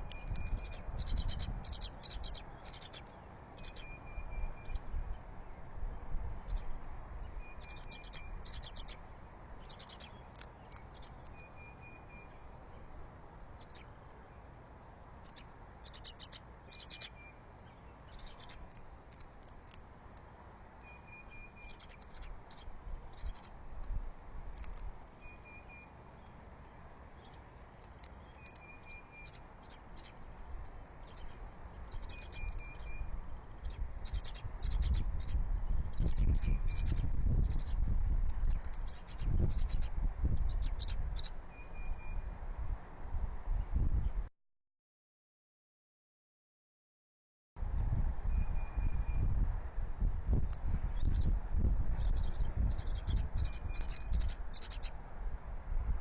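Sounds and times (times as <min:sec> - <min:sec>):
wind buffeting microphone: 0:00.0 - 0:02.4, 0:32.0 - 0:41.4, 0:42.2 - 0:44.3, 0:47.6 - 0:56.0
high-pitched bird chirps: 0:00.0 - 0:05.2, 0:06.4 - 0:09.0, 0:09.6 - 0:12.4, 0:13.6 - 0:13.9, 0:15.2 - 0:18.8, 0:20.8 - 0:23.5, 0:24.6 - 0:26.0, 0:28.1 - 0:30.2, 0:31.0 - 0:37.8, 0:38.4 - 0:42.3, 0:48.3 - 0:49.4, 0:50.9 - 0:55.0.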